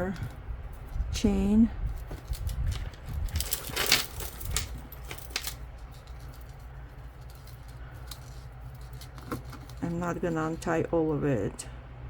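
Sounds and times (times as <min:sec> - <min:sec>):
metal necklace chain clinking: 0:00.0 - 0:10.6
low steady hum: 0:00.0 - 0:12.0.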